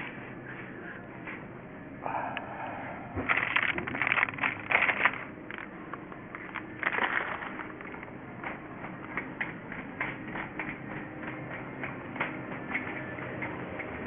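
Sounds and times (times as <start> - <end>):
crunching and scraping in snow: 3.3 - 8.1.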